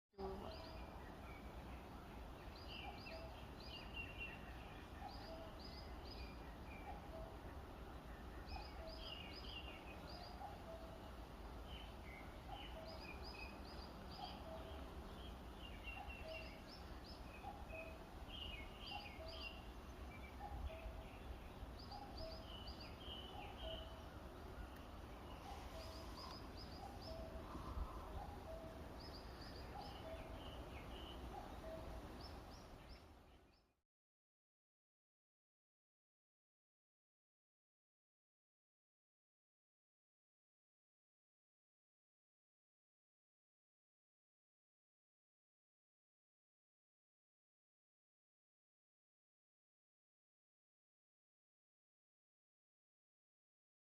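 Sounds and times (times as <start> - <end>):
high bird chirping: 11.8 - 33.0.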